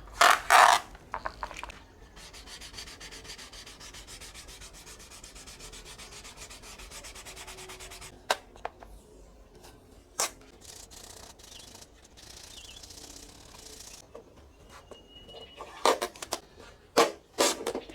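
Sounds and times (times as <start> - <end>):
hand sanding strokes: 2.2 - 8.1.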